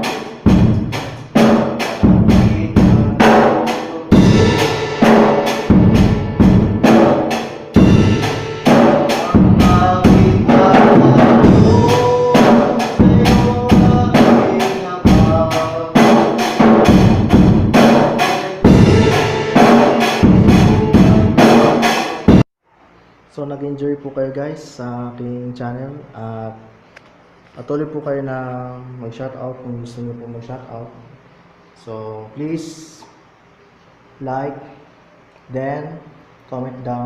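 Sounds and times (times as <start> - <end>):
ringing tom tones: 0.0 - 22.4
drum kit playing: 0.0 - 22.5.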